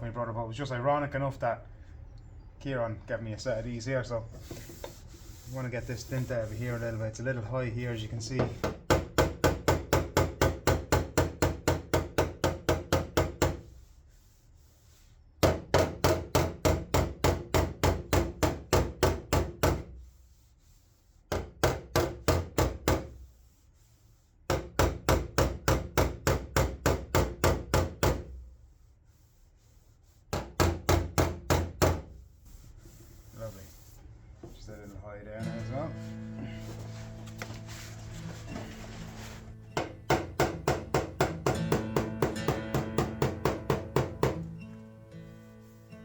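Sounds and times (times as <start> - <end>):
hammer tapping steel panel: 39.8 - 44.5.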